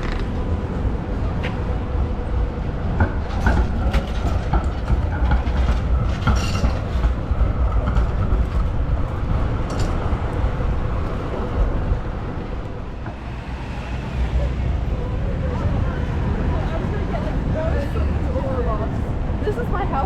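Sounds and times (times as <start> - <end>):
tram rumbling on rails: 0.0 - 20.0
wheel clatter on track: 2.9 - 11.1.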